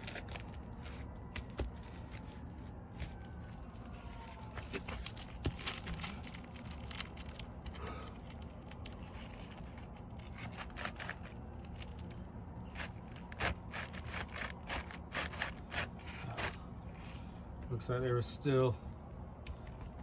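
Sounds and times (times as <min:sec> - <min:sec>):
roof shingles scraping and tearing: 0:08.3 - 0:16.6.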